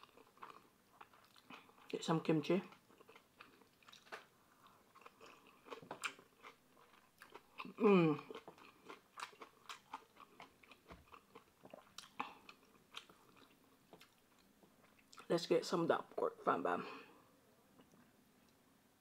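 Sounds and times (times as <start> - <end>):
chewing with wet crunches: 0.0 - 2.0, 2.6 - 15.3
person humming: 7.8 - 8.3.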